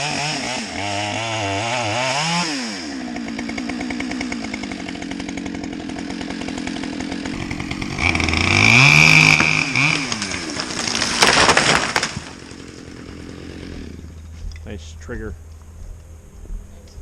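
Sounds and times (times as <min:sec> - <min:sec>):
chainsaw revving and cutting: 0:00.0 - 0:14.4
loud crackling burst: 0:07.3 - 0:12.6.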